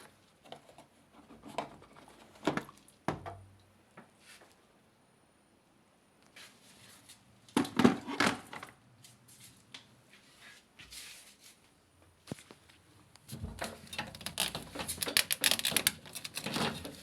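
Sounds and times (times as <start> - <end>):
handling clicks and knocks: 13.2 - 17.0
clattering and scraping: 13.3 - 17.0.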